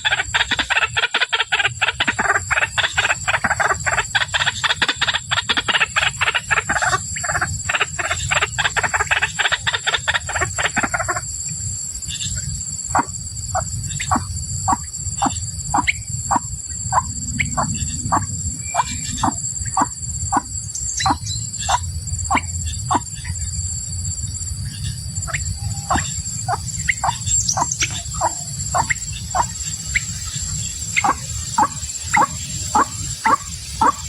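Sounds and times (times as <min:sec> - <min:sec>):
high insect trill: 0:00.0 - 0:34.0
waterhen calling: 0:13.0 - 0:23.1, 0:25.3 - 0:34.0.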